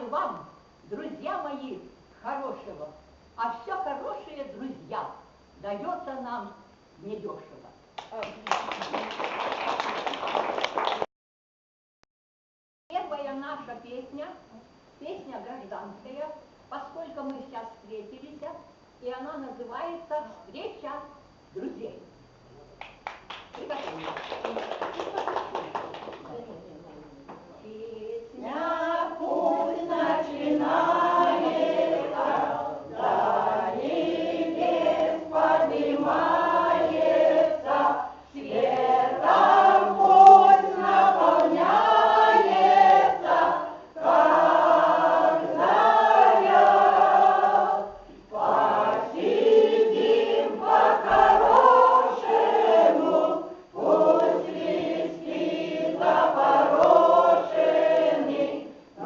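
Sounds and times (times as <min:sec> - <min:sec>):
choir singing: 0:28.4 - 0:59.0.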